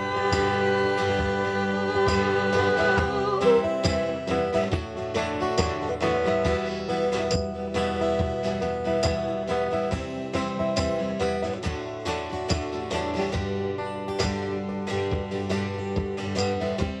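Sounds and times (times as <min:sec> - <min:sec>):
strummed acoustic guitars: 0:00.0 - 0:17.0.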